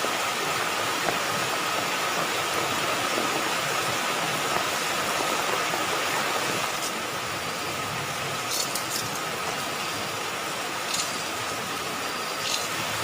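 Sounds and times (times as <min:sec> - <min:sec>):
heavy rain falling: 0:00.0 - 0:13.0
sharp ticks: 0:12.4 - 0:12.8.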